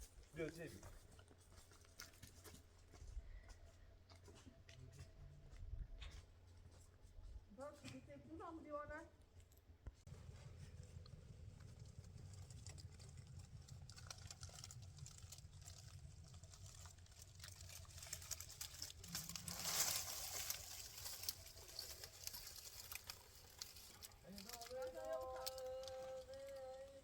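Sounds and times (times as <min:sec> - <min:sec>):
low rumble: 0:10.1 - 0:22.3
water trickling and pattering: 0:10.5 - 0:27.0.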